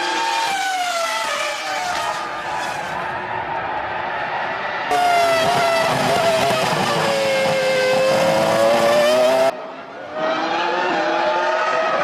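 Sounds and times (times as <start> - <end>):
race car engine at high revs: 4.9 - 12.0
race car engine rising in pitch: 4.9 - 12.0.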